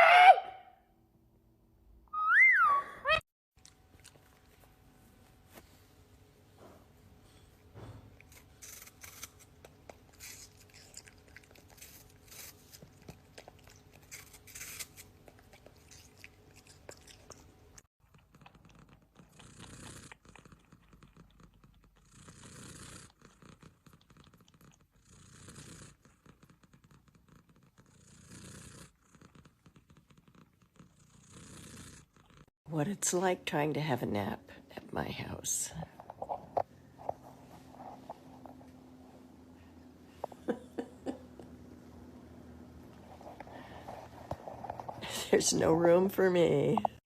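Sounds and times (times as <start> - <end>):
cat purring: 15.9 - 32.5.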